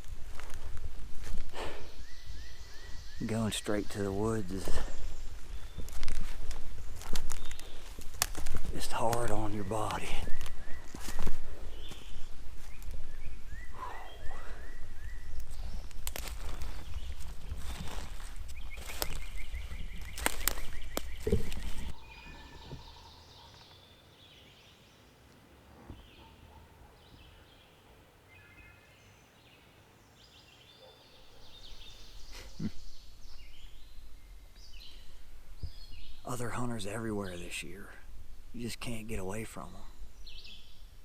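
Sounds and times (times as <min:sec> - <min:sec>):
footsteps crunching through leaves: 0:00.0 - 0:01.5, 0:05.0 - 0:09.5, 0:10.3 - 0:12.8, 0:15.6 - 0:22.0
small birds chirping: 0:00.0 - 0:41.0.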